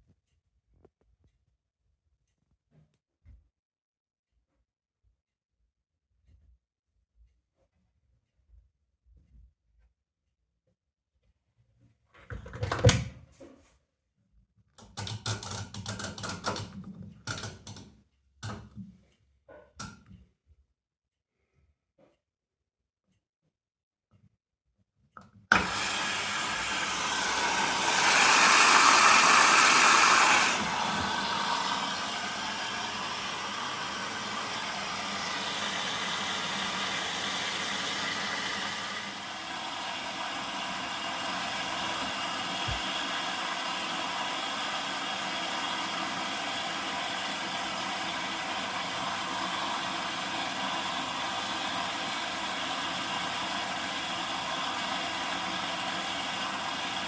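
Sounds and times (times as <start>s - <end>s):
washing machine water rushing in: 25.5s - 57.0s.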